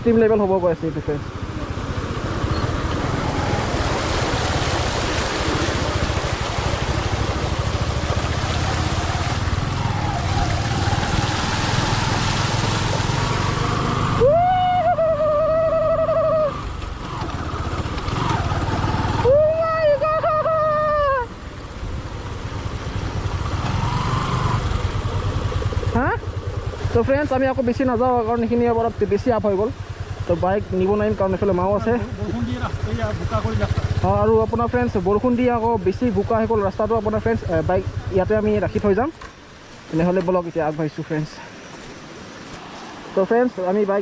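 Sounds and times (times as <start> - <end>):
wind and road noise: 0.0 - 44.0
high-pitched hooting calls: 14.2 - 16.7.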